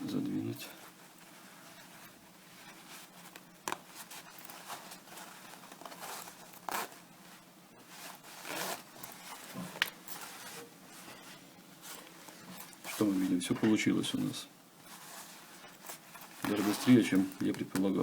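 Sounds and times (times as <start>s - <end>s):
zipper scraping rasps: 3.7s - 7.0s, 8.0s - 10.6s, 15.0s - 17.4s
zipper clicks: 5.7s - 7.0s, 8.4s - 10.2s, 15.8s - 17.4s.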